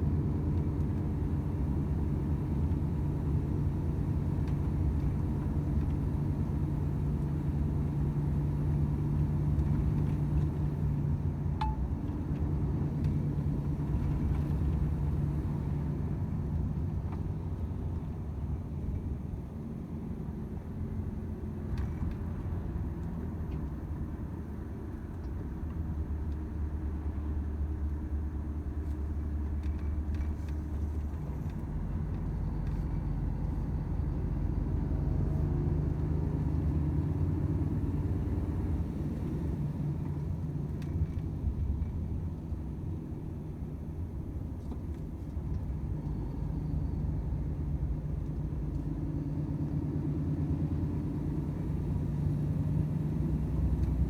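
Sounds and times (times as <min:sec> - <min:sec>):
road rumble: 0:00.0 - 0:54.0
truck diesel engine drone: 0:30.5 - 0:41.9, 0:45.4 - 0:54.0.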